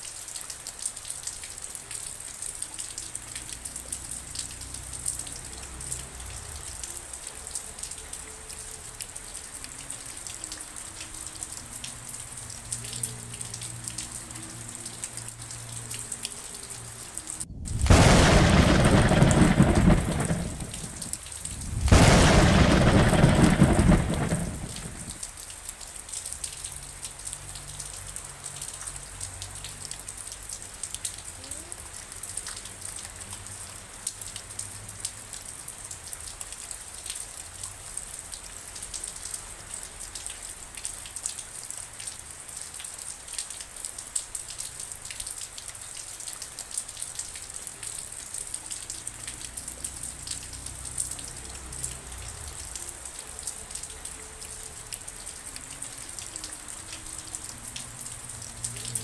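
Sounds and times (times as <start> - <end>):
rain pattering: 0.0 - 59.0
thunder rumbling: 16.9 - 25.3, 50.7 - 53.1.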